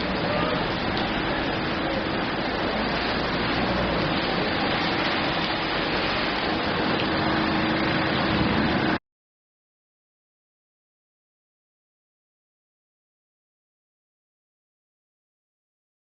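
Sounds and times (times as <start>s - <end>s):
steady rain falling: 0.0s - 9.0s.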